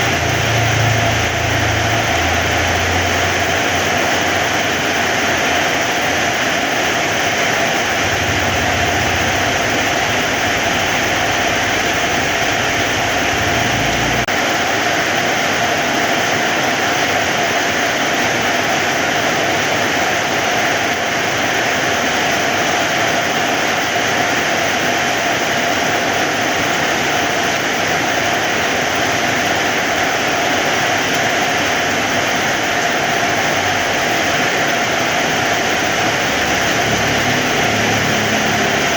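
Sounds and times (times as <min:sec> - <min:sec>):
heavy rain falling: 0:00.0 - 0:38.9
low rumble: 0:07.9 - 0:14.3.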